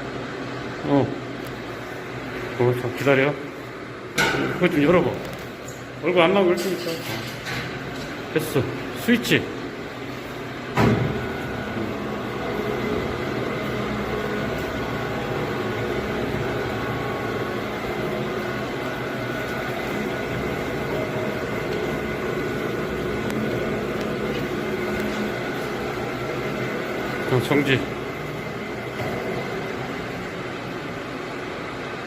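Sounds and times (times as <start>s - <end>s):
mixer motor humming: 7.8s - 32.0s.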